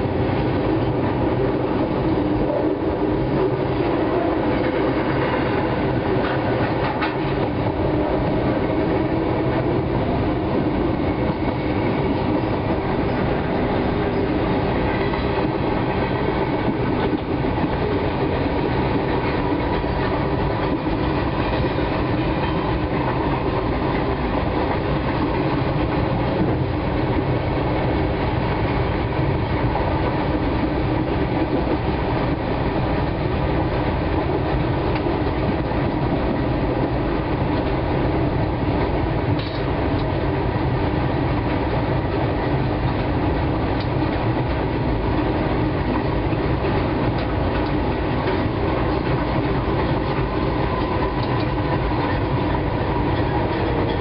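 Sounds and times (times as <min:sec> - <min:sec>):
train running on track: 0:00.0 - 0:54.0.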